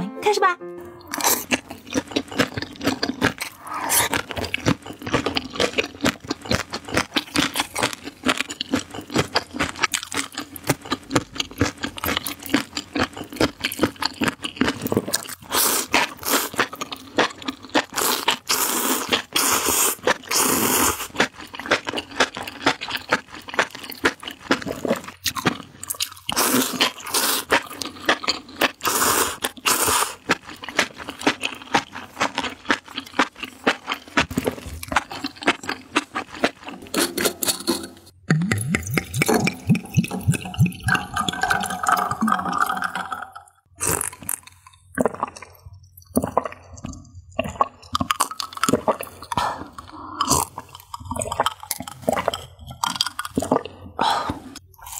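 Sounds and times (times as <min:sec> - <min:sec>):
wet chewing and crunching: 0:01.1 - 0:54.9
slurping mushroom strands: 0:01.2 - 0:11.0, 0:13.0 - 0:25.2, 0:26.3 - 0:37.9.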